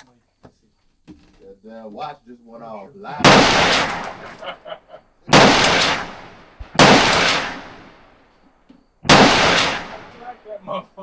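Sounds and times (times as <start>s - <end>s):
rifle shots with echo: 3.2s - 4.6s, 5.3s - 8.3s, 9.1s - 10.5s.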